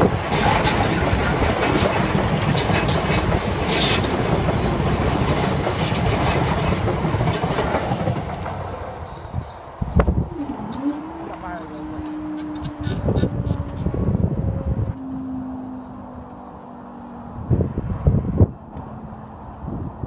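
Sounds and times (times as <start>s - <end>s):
train wheels clattering over rail joints: 0.0s - 13.9s.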